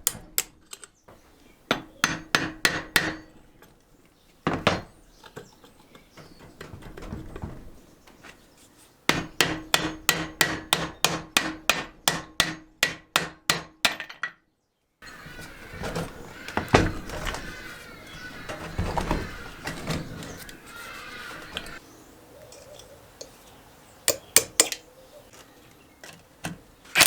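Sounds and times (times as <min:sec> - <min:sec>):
scraping and handling noises: 0:03.2 - 0:09.1, 0:15.0 - 0:21.8
knocks: 0:15.0 - 0:20.7.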